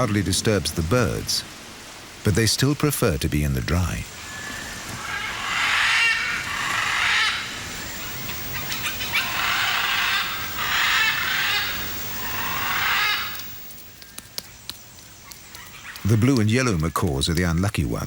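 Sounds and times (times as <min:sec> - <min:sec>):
macaws screeching: 0:04.2 - 0:14.2, 0:15.0 - 0:16.6.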